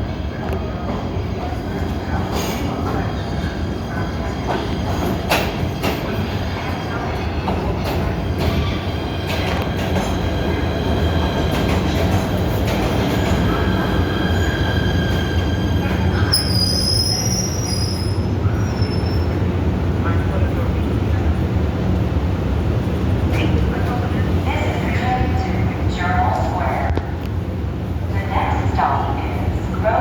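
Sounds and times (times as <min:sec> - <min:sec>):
train rumbling on rails: 0:00.0 - 0:30.0
high wheel squeal: 0:13.9 - 0:19.4.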